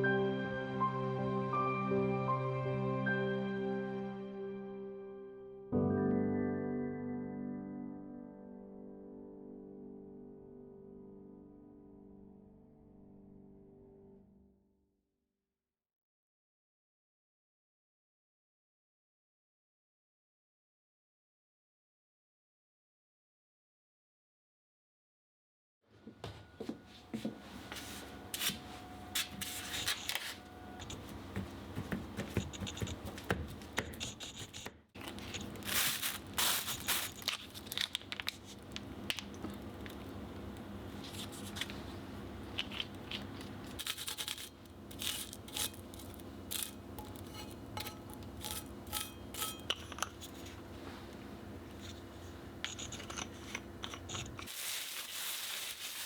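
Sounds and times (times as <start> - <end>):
utensils scraping and clicking: 28.3 - 40.2, 41.0 - 55.1
steady low hum: 35.0 - 54.5.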